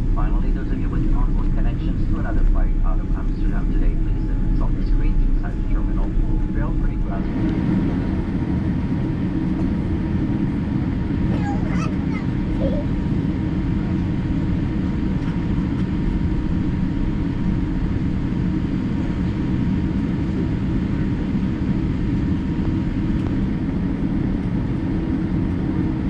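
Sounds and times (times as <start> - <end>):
faint steady whine: 0.0 - 11.6
low rumble inside aircraft cabin: 0.0 - 26.0.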